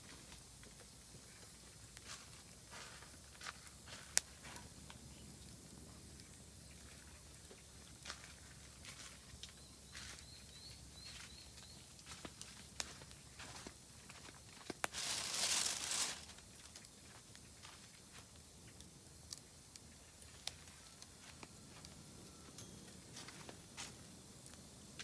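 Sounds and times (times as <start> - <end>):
firewood crackling in campfire: 0.1 - 25.0
bird chirping: 9.6 - 11.9.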